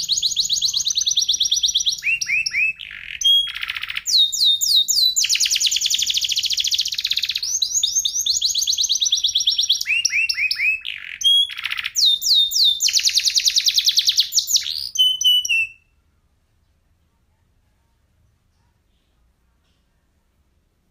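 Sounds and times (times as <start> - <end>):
canary singing trills: 0.0 - 16.0.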